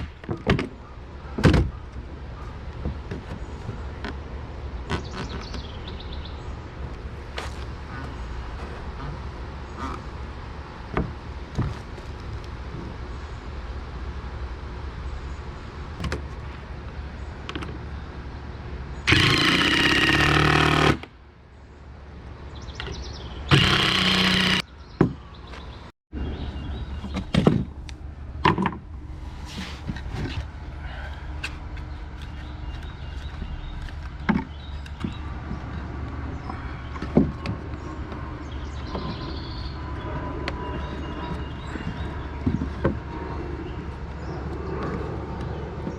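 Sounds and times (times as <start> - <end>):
knocks on wooden deck boards: 1.4 - 1.8, 23.5 - 25.3
power tool running: 19.1 - 21.1, 23.5 - 24.6.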